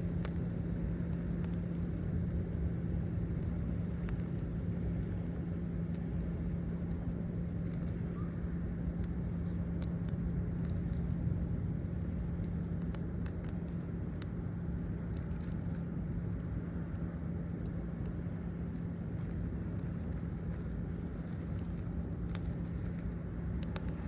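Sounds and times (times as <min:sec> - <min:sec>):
campfire crackling: 0:00.0 - 0:24.0
constant low hum: 0:00.0 - 0:24.0.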